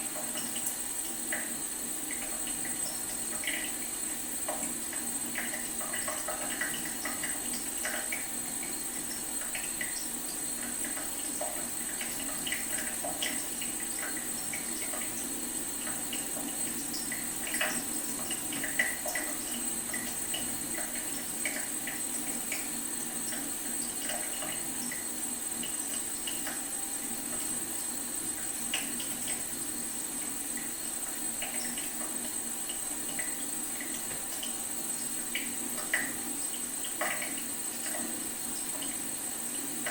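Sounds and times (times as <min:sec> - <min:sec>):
faucet dripping: 0:00.0 - 0:39.9
faint high whine: 0:19.0 - 0:39.9.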